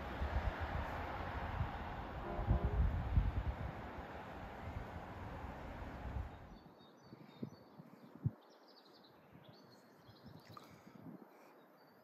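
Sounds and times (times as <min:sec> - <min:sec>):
songbirds chirping: 0:03.3 - 0:12.0.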